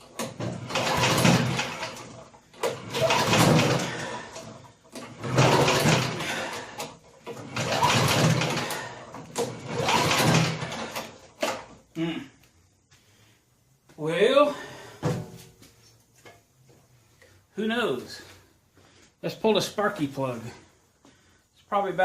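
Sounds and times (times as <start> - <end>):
engine cranking: 0.0 - 11.7
mower recoil starter pulled: 0.0 - 11.7.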